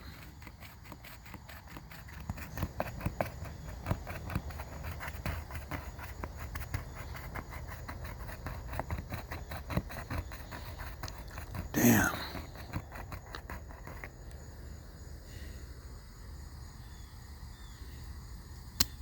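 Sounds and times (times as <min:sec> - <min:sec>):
raccoon chewing crunchy food: 0:00.0 - 0:14.3
night insects chorus: 0:00.0 - 0:19.0.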